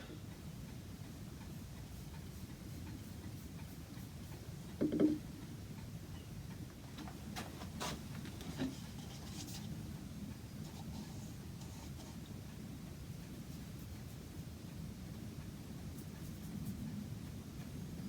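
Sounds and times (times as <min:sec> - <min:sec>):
dull knock on wooden case: 0:04.8 - 0:05.2.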